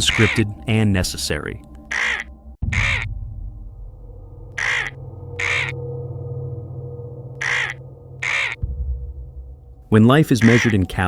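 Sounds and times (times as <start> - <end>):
crow-like bird caws: 0.0 - 0.4, 1.8 - 3.2, 4.5 - 6.0, 7.3 - 8.6, 10.4 - 10.9
low steady drone: 0.0 - 11.0.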